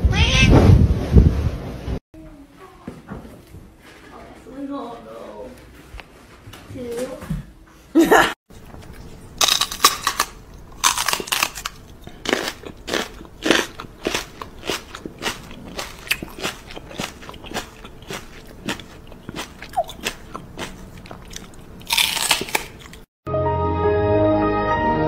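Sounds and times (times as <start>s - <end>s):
crunchy chewing: 8.5s - 23.1s.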